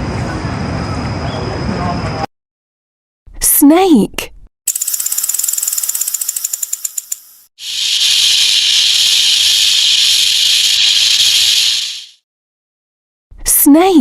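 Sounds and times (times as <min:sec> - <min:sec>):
snake rattling: 0:04.7 - 0:12.2
snake hissing: 0:07.6 - 0:12.2.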